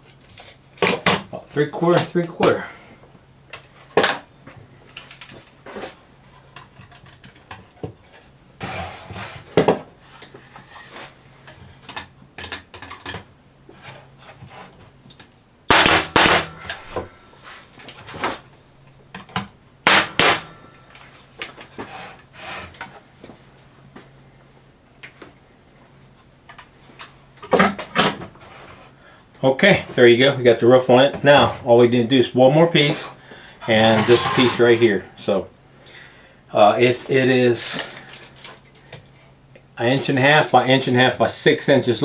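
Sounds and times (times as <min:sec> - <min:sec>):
nails hammered into boards: 0:15.7 - 0:16.7, 0:19.8 - 0:20.5.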